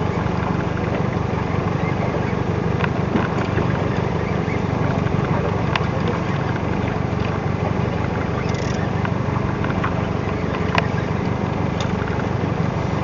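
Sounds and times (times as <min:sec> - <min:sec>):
boat engine droning: 0:00.0 - 0:13.0
faint clicks: 0:08.4 - 0:10.9.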